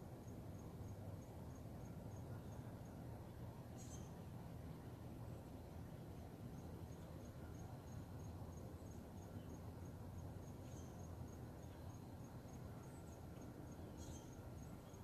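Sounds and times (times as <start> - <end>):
insect chirping: 0.2 - 3.0, 6.2 - 15.0.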